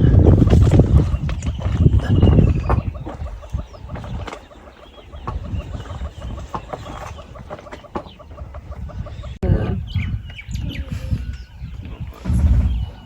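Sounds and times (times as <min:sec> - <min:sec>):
birds clucking calls: 0:00.0 - 0:13.0
low rumble: 0:12.0 - 0:13.0.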